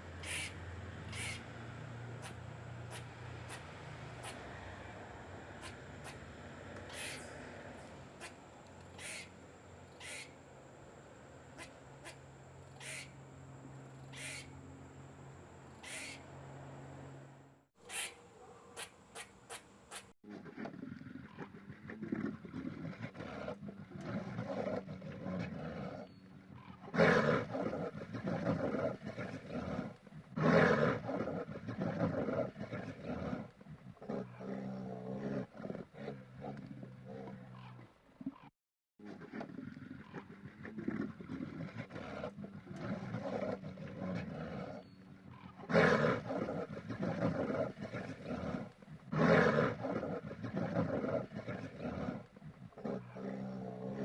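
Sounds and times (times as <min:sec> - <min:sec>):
bear growling and roaring: 0:20.2 - 0:54.0.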